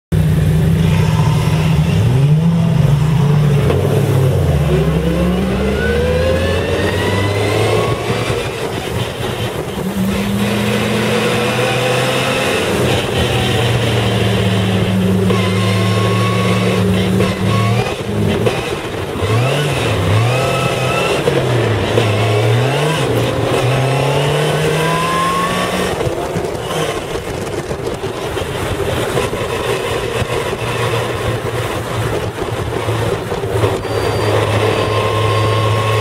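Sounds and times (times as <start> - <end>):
car engine revving: 0.1 - 36.0.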